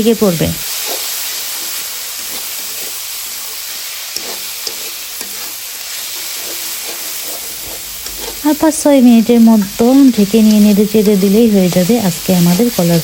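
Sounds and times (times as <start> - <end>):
food sizzling in a pan: 0.0 - 13.0
spatula scraping a pan: 0.6 - 8.7.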